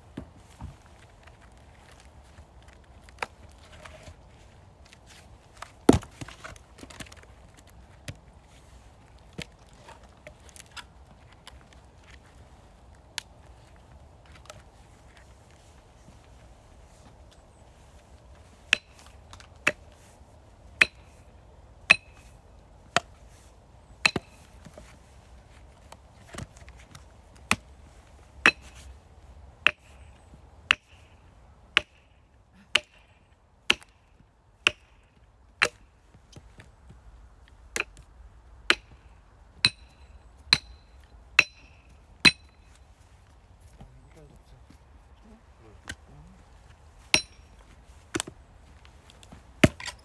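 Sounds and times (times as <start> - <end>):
axe chopping firewood: 5.6 - 7.7, 18.6 - 19.9, 20.7 - 21.2, 21.9 - 23.2, 24.0 - 25.0, 26.2 - 27.8, 28.4 - 28.9, 29.6 - 31.2, 31.8 - 34.0, 34.6 - 35.0, 35.6 - 35.8, 37.7 - 39.0, 39.6 - 42.7, 47.0 - 50.0.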